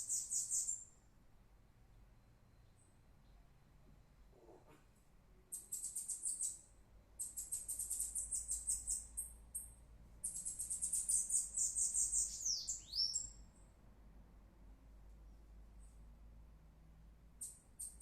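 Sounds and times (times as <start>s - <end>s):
bird buzzy trilled song: 0.0s - 0.9s, 5.5s - 13.4s, 17.4s - 18.0s.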